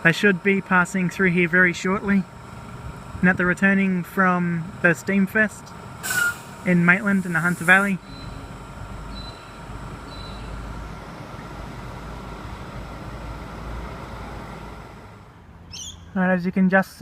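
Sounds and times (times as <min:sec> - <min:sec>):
passing vehicle rumble: 0:08.0 - 0:15.8.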